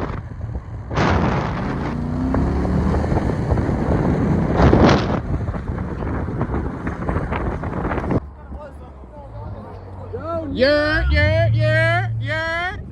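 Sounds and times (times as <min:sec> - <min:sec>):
wind buffeting microphone: 0:00.0 - 0:08.7
vehicle engine running: 0:00.0 - 0:12.9.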